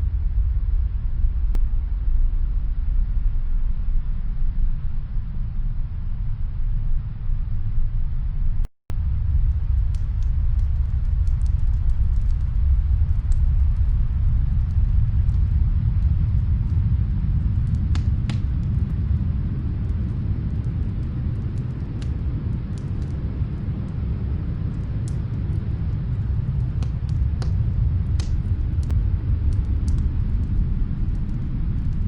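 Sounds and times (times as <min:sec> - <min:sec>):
snowstorm wind rumble: 0:00.0 - 0:32.0
faint wood fire crackling: 0:08.9 - 0:32.0.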